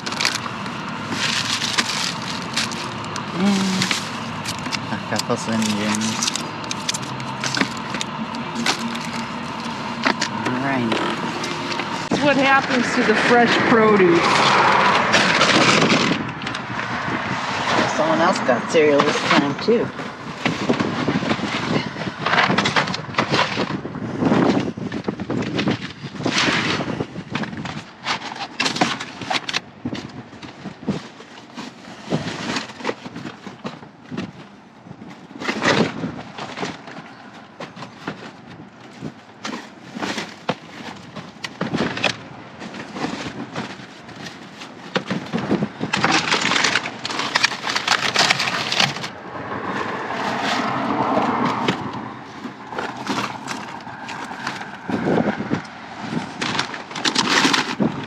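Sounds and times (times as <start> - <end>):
food wrappers rustling: 0.0 - 13.2, 27.9 - 58.0.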